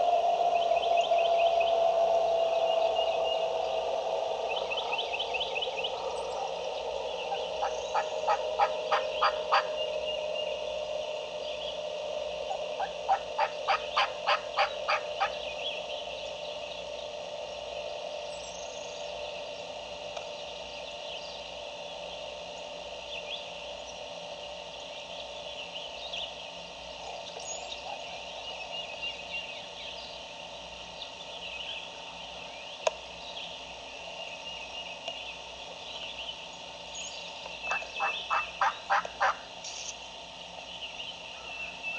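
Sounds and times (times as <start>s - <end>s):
faint songbird chirps: 0.4s - 41.9s
turkey yelps: 7.6s - 9.8s, 12.8s - 15.3s, 37.7s - 39.4s.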